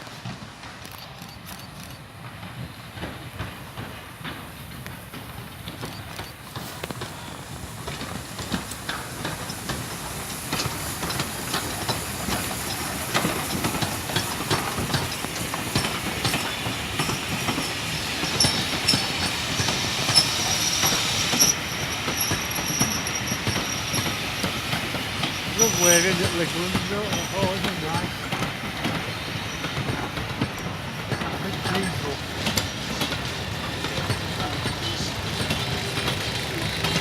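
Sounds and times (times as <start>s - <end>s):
train wheels clattering: 0.0s - 37.0s
high wheel squeal: 16.2s - 24.5s, 25.3s - 28.0s.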